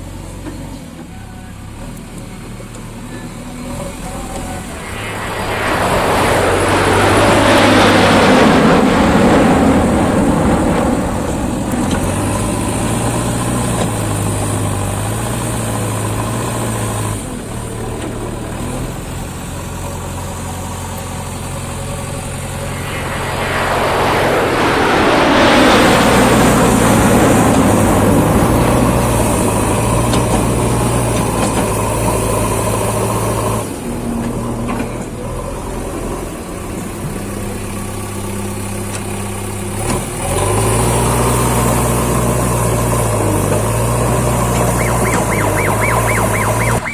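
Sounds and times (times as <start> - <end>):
diesel engine running: 0.0 - 40.3
vehicle passing by: 3.0 - 15.7, 18.6 - 33.8.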